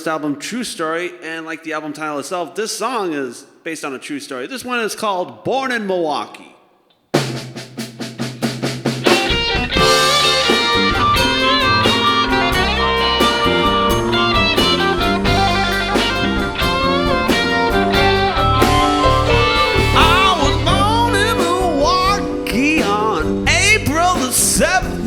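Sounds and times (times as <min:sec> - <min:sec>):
live blues-rock band: 0:08.1 - 0:25.0
electric guitar lead: 0:09.0 - 0:23.8.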